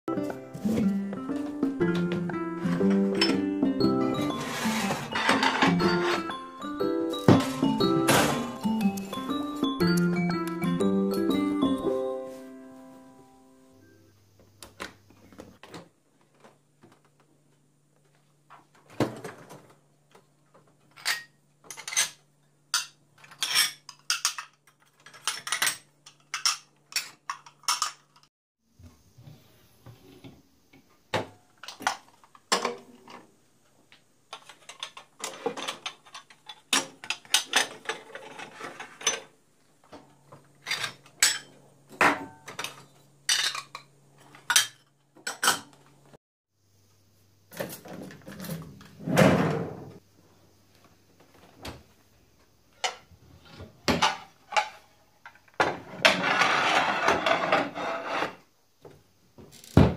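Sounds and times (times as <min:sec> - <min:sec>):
dishes and utensils clattering: 0:01.9 - 0:09.4, 0:20.7 - 0:28.3, 0:31.2 - 0:33.3, 0:34.3 - 0:45.8, 0:52.8 - 0:58.4.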